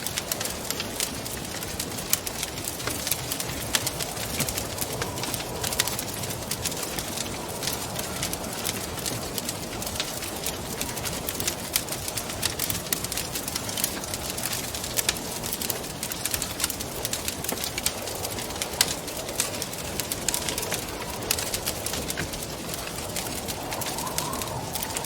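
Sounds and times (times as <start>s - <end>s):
rushing wind: 0.0s - 25.0s
wood fire crackling and popping: 0.0s - 25.0s.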